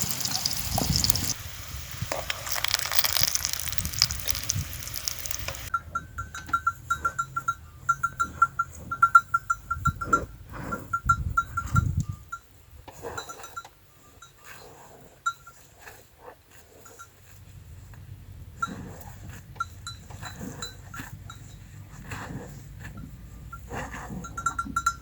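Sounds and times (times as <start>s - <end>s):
small livestock bells ringing: 2.5s - 14.6s, 19.6s - 21.8s, 23.4s - 25.0s.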